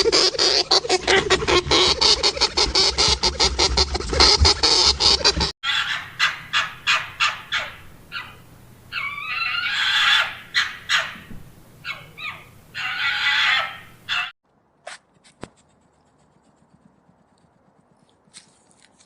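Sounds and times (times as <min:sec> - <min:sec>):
geese honking: 0:00.0 - 0:14.3.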